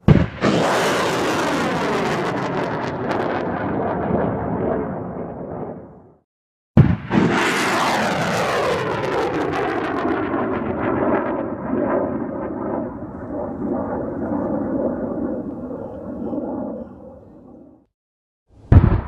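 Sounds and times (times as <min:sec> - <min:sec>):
rocket launch roar: 0:00.0 - 0:06.2, 0:06.8 - 0:13.4, 0:18.6 - 0:19.0.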